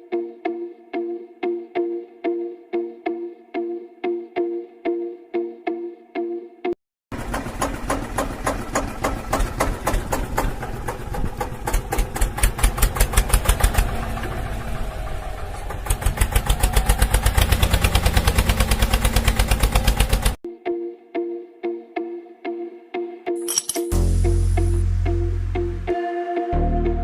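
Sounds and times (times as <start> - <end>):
diesel engine chugging: 7.1 - 20.4.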